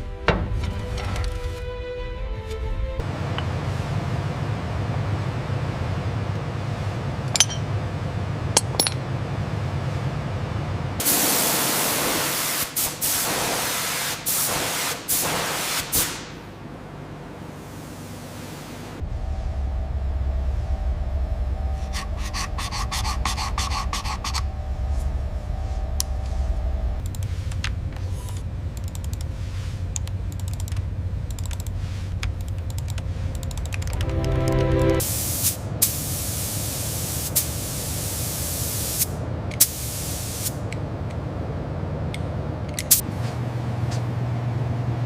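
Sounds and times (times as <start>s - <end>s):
steady low hum: 0.0s - 11.0s, 16.3s - 45.0s
loud spraying hiss: 11.0s - 16.4s, 35.0s - 40.6s
rapid clicking bursts: 28.7s - 29.3s, 30.0s - 34.0s.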